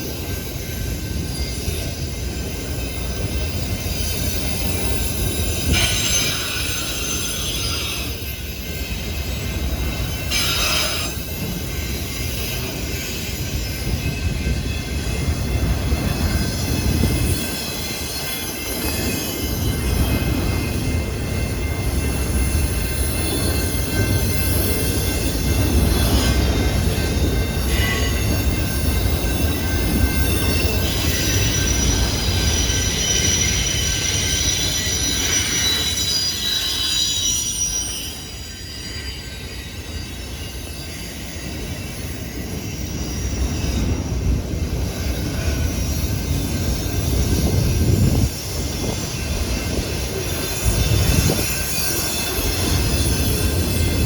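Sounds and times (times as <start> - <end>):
train rumbling on rails: 0.0 - 54.0
high wheel squeal: 4.1 - 14.0, 22.5 - 44.1.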